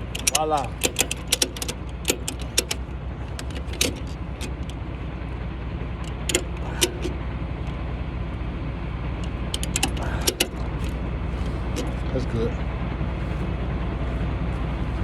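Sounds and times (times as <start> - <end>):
sharp clicks and clinks: 0.0 - 4.8, 6.0 - 7.2, 9.2 - 11.0
truck engine idling: 0.0 - 15.0.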